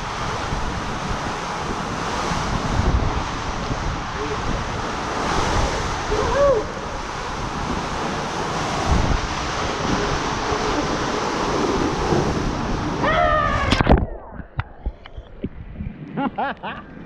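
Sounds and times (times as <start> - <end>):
rushing water: 0.0 - 14.2
wind buffeting microphone: 0.0 - 17.0
person crying out: 6.1 - 6.9, 13.0 - 13.8.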